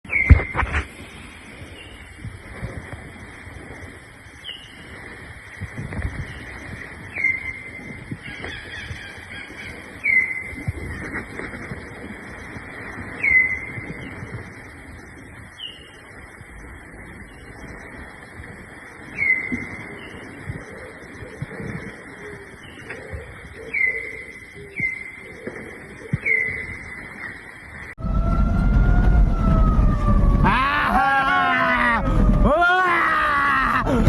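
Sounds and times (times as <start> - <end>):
forest background hiss: 0.1 - 27.9
low thumps: 28.0 - 34.0.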